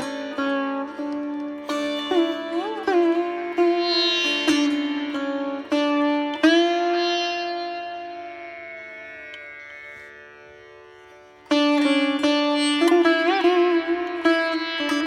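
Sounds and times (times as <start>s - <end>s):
plucked strings: 0.0s - 8.4s, 11.5s - 15.0s.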